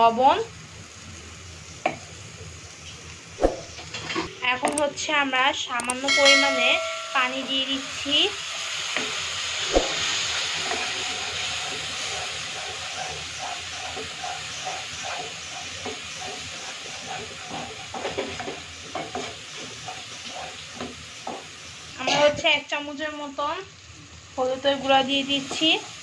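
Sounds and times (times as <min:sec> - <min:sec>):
masala sizzling in oil: 0:00.0 - 0:26.0
spatula scraping and tapping pan: 0:11.6 - 0:22.3, 0:25.3 - 0:25.9.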